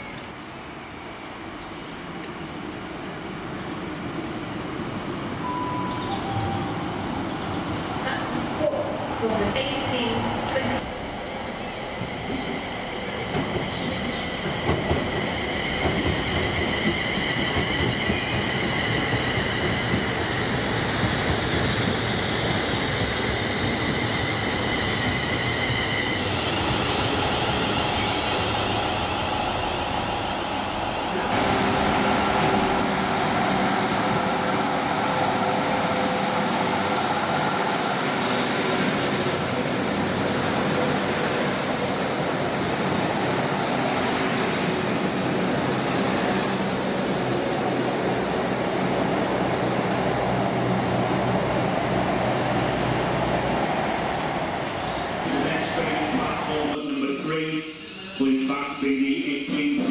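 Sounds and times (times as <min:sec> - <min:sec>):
electric train whine: 0:03.6 - 0:59.6
train wheels on rails: 0:11.7 - 0:57.0.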